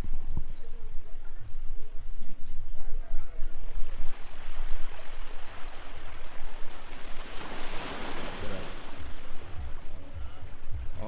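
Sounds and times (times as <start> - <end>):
wind buffeting microphone: 0.0 - 11.0
sea surf rushing: 3.8 - 11.0.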